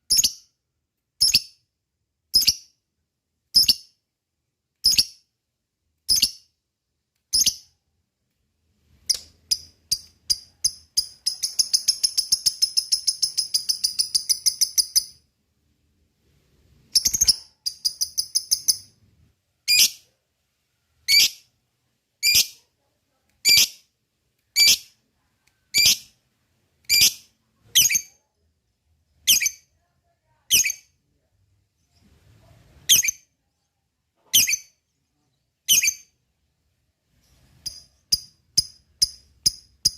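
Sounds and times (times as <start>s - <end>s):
lovebird chirps and trills: 0.1s - 0.5s, 2.3s - 2.7s, 4.8s - 5.2s, 6.1s - 6.5s, 7.3s - 7.7s, 9.1s - 15.2s, 16.9s - 19.0s, 19.6s - 20.0s, 21.0s - 21.5s, 22.2s - 22.6s, 23.4s - 23.8s, 24.5s - 25.0s, 25.7s - 26.2s, 26.9s - 28.2s, 29.2s - 29.7s, 30.5s - 31.0s, 32.9s - 33.7s, 34.3s - 36.2s, 37.3s - 39.9s.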